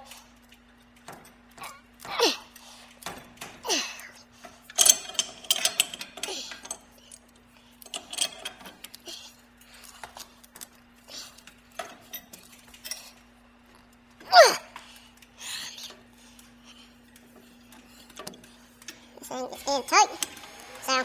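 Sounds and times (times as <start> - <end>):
pipe wrench clinking on fittings: 4.6 - 9.0.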